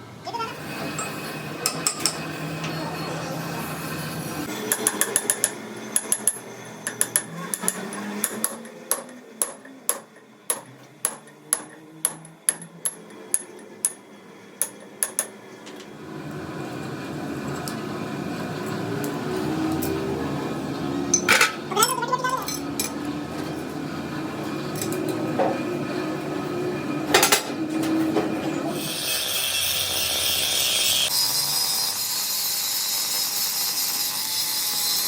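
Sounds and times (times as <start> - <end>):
hammer striking metal: 1.0 - 2.3, 4.6 - 14.0, 14.6 - 15.4.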